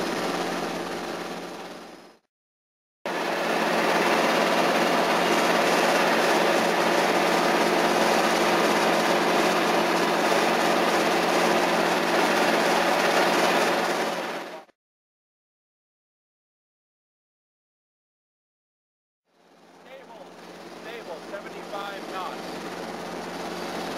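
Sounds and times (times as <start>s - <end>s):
helicopter engine and rotors: 0.0s - 2.3s, 3.1s - 14.7s, 19.3s - 23.9s.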